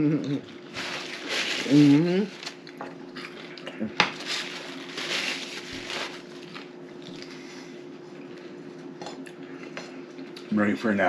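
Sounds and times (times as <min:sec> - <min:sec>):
faint steady hum: 0:00.0 - 0:11.0
food crunching: 0:00.2 - 0:07.4
person chewing food: 0:02.4 - 0:04.8, 0:08.1 - 0:10.5.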